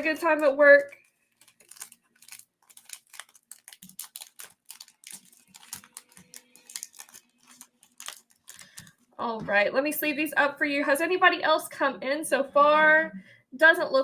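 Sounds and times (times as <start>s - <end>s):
cards sliding into plastic sleeves: 1.4s - 9.0s.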